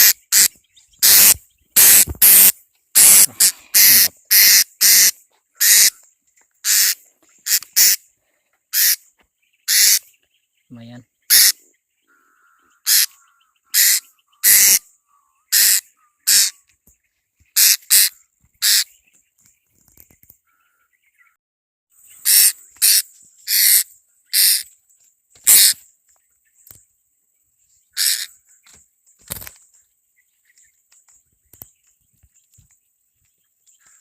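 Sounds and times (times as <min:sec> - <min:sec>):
parrot shrill calls: 0:03.0 - 0:05.9, 0:09.7 - 0:10.0, 0:11.3 - 0:11.6, 0:12.8 - 0:14.8, 0:15.5 - 0:16.5, 0:22.2 - 0:23.8, 0:25.5 - 0:25.8, 0:28.0 - 0:28.3.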